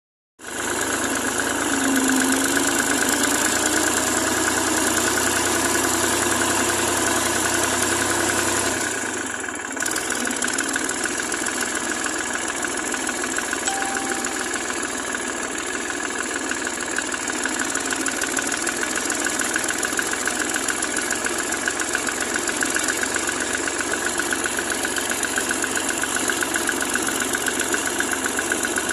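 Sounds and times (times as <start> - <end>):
tractor engine idling: 0.5 - 7.0.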